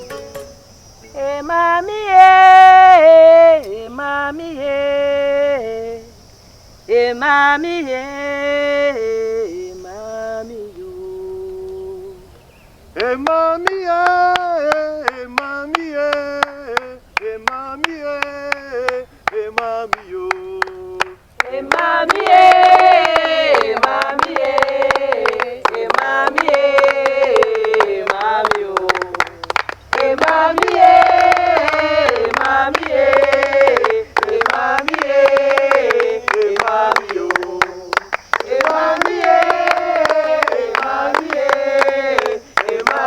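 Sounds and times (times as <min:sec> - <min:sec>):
person singing long held notes: 0:13.0 - 0:43.0
steady hand claps: 0:13.0 - 0:43.0.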